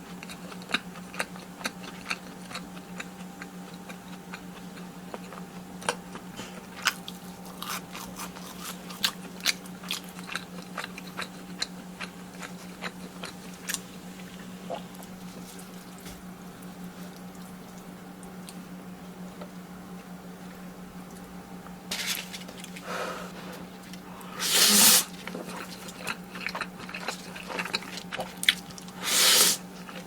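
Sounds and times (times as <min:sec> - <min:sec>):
steady low hum: 0:00.0 - 0:30.0
crunching bites and chewing: 0:00.1 - 0:18.6, 0:25.0 - 0:30.0.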